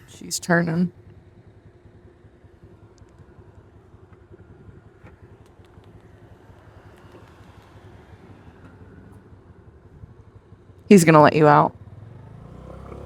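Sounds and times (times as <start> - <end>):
motorbike engine idling: 0.0 - 13.0
faint ticks: 5.0 - 7.8.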